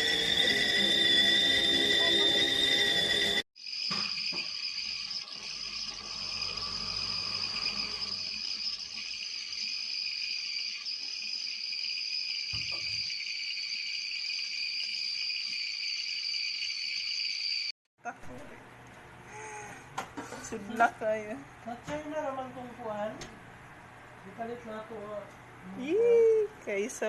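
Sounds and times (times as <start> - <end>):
kettle whistling: 0.0 - 17.7.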